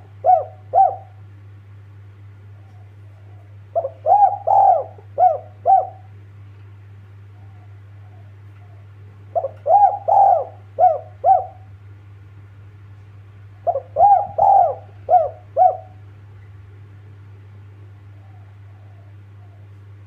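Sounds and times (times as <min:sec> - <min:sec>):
dove cooing: 0:00.0 - 0:01.3, 0:02.5 - 0:06.2, 0:07.3 - 0:11.8, 0:13.5 - 0:16.1, 0:18.1 - 0:20.0
steady low hum: 0:00.0 - 0:20.0.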